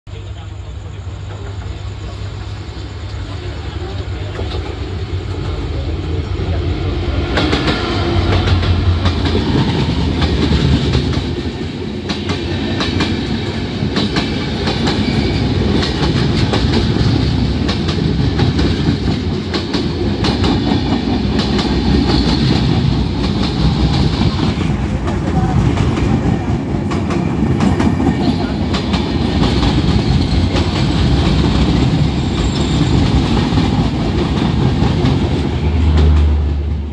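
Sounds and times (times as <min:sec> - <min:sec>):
low train drone: 0:00.1 - 0:36.9
train rushing noise: 0:00.2 - 0:36.9
train wheels clattering over rail joints: 0:07.3 - 0:36.5.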